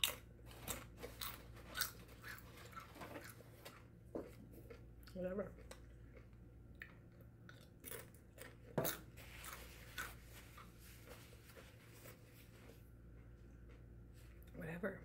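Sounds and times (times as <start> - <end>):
chewing crunchy chips: 0.0 - 10.8.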